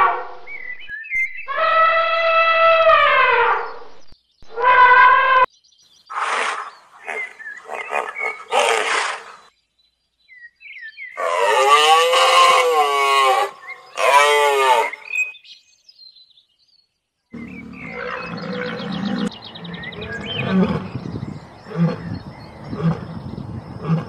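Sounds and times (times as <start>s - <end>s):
rhino calf squealing: 11.2s - 15.1s
lion cubs growling and grunting: 17.4s - 21.0s.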